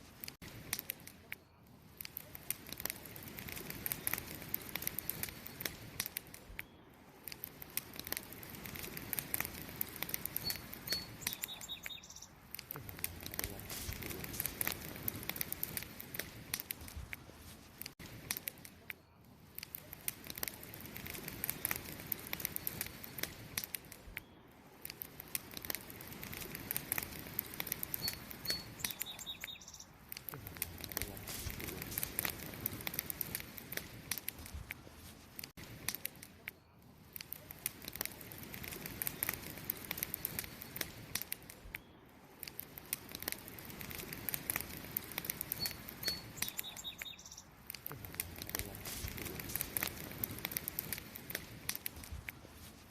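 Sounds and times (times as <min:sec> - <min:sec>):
wood fire crackling: 0:00.0 - 0:52.9
faint high chirp: 0:10.4 - 0:12.4, 0:28.0 - 0:29.9, 0:45.5 - 0:47.5.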